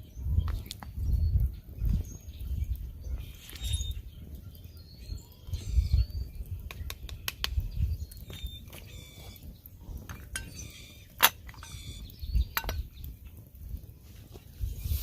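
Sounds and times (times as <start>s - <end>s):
faint bird chirps: 0.1s - 13.2s
sharp clicks: 6.6s - 7.8s.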